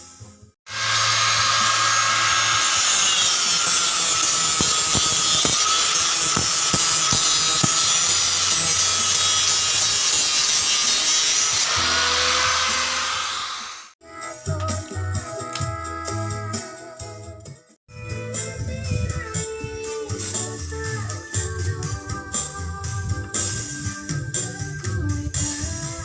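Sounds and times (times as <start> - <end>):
power tool whining: 0.7 - 14.0.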